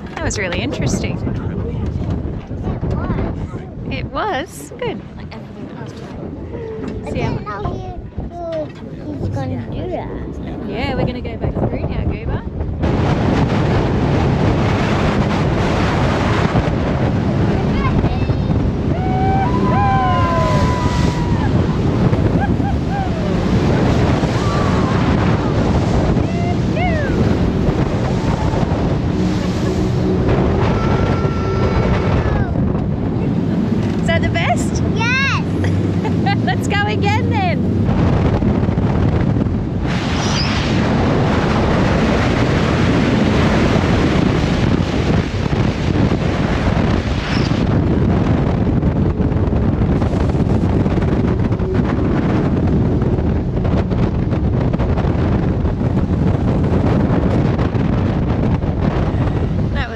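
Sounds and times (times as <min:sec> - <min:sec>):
churning water: 0:00.0 - 0:59.9
jet boat running: 0:00.0 - 0:59.9
wind buffeting microphone: 0:00.0 - 0:59.9
voices crying out: 0:18.9 - 0:23.6, 0:30.5 - 0:32.6.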